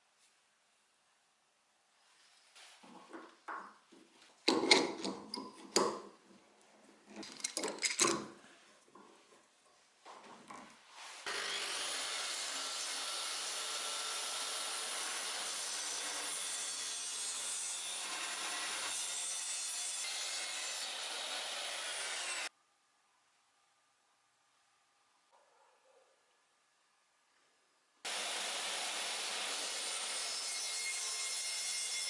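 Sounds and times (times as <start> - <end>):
power tool running on wood: 28.1 - 30.1.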